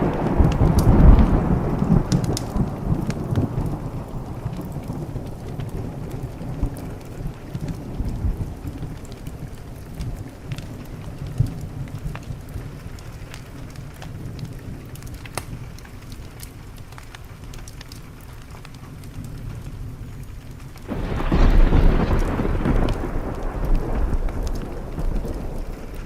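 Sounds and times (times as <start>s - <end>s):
thunder peal: 0.0s - 6.8s, 20.9s - 26.0s
rain on a window: 0.0s - 26.0s
sharp crackles: 0.0s - 26.0s.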